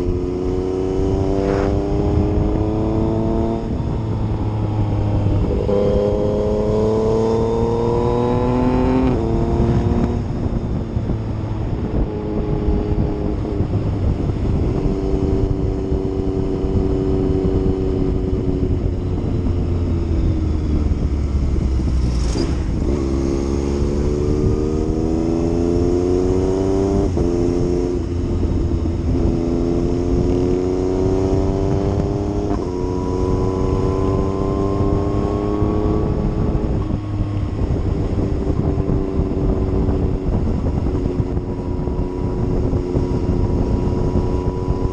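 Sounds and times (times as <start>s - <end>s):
motorcycle engine shifting gears: 0.0s - 44.9s.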